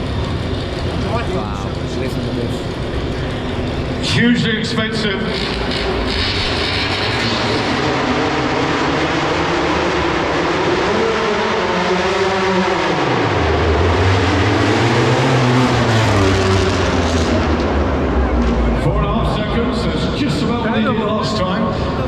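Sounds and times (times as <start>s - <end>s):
motorcycle engine revving hard: 5.3s - 18.8s.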